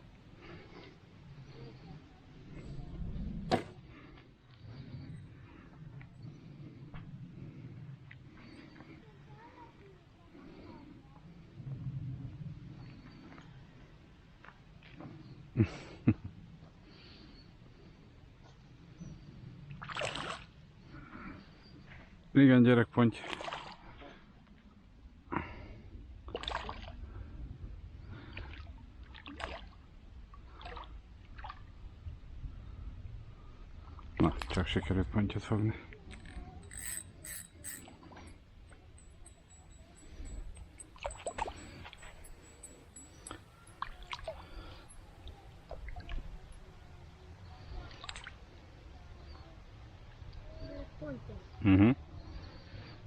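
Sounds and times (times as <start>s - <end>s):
small clicks and knocks: 36.1s - 37.9s.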